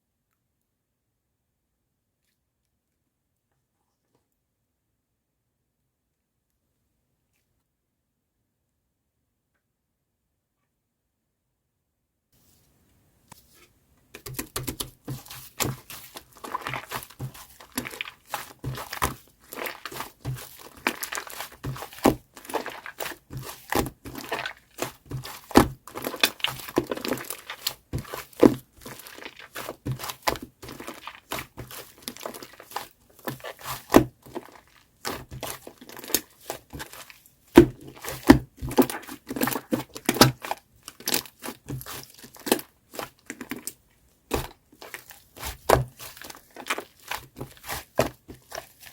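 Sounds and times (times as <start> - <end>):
foam slime crackling and popping: 14.2 - 48.9.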